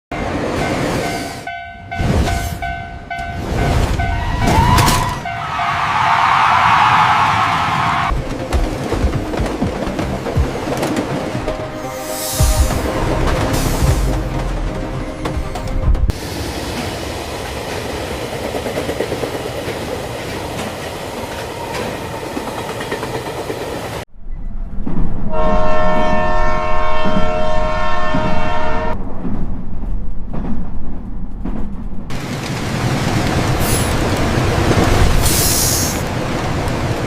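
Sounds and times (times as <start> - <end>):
train running: 0.1 - 37.0
train horn blast: 25.3 - 29.0.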